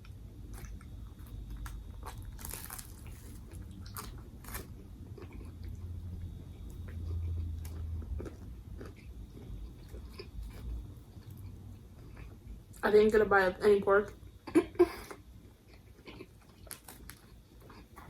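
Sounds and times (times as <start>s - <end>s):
chewing with small crackles: 0.0s - 12.8s, 14.0s - 18.0s
crunchy sandwich bite crunches: 0.5s - 5.8s, 16.1s - 18.0s.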